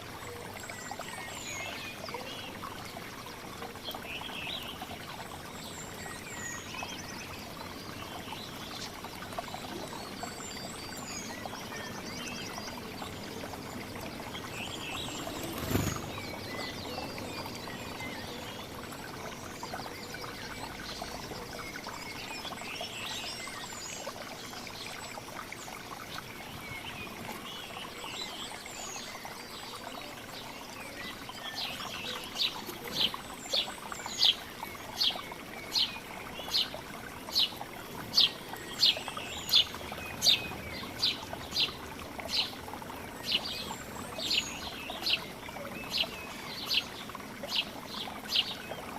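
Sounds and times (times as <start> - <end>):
small birds chirping: 3.9 - 48.9
trickling hiss: 8.6 - 45.2.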